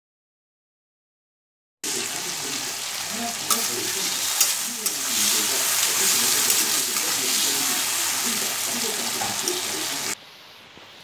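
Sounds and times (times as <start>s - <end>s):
prawns sizzling in hot oil: 1.8s - 10.2s.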